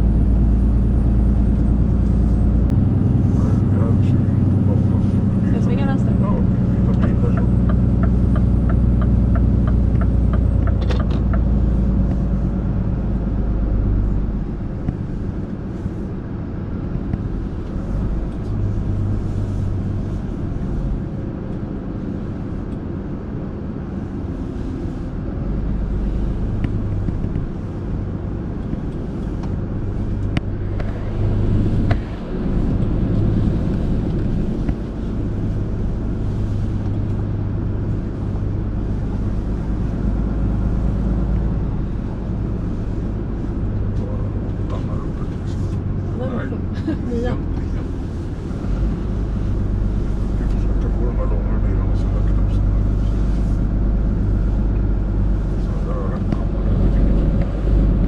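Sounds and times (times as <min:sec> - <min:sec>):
diesel truck engine rumbling: 0:00.0 - 0:58.0.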